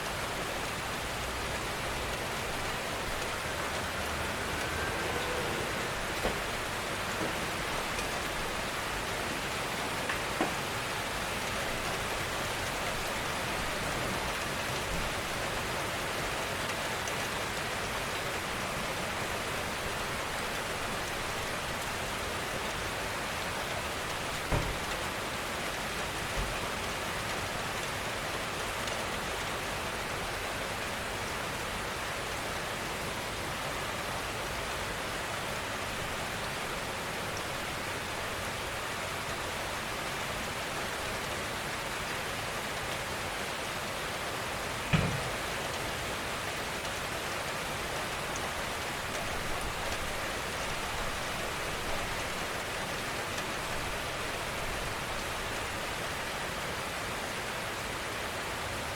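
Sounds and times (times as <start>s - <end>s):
gentle rainfall: 0.0s - 58.9s
single raindrop hits: 44.9s - 45.7s.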